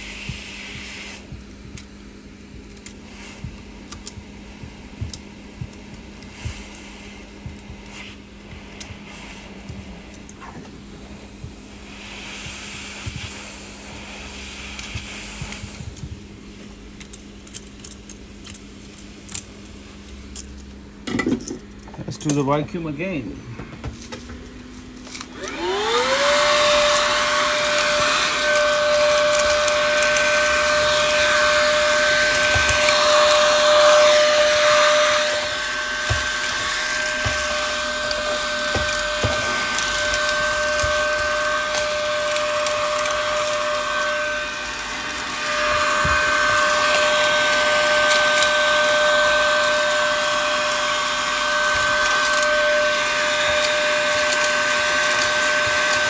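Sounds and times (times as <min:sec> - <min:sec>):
small vacuum cleaner motor whine: 0:00.0 - 0:17.8, 0:23.0 - 0:56.0.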